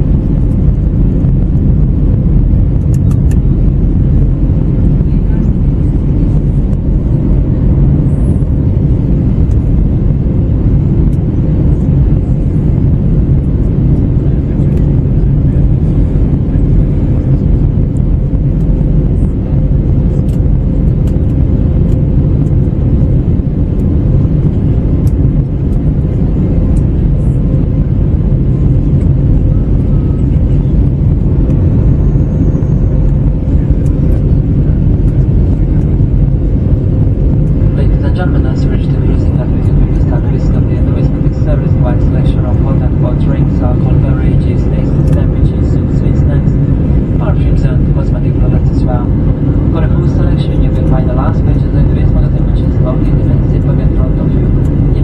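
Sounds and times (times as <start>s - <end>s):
airplane cabin rumble: 0.0s - 55.0s
faint steady hum: 0.0s - 55.0s.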